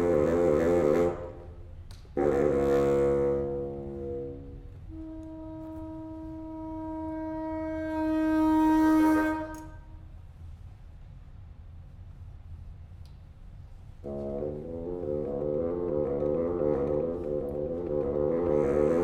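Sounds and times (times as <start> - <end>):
long woodwind note: 0.0 - 1.6, 2.2 - 10.1, 14.0 - 19.0.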